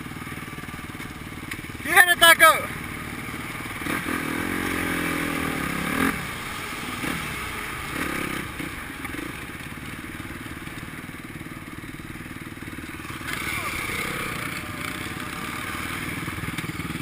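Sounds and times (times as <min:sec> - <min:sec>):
dirt bikes running: 0:00.0 - 0:17.0
motocross bike engine revving: 0:01.3 - 0:10.2, 0:12.4 - 0:17.0.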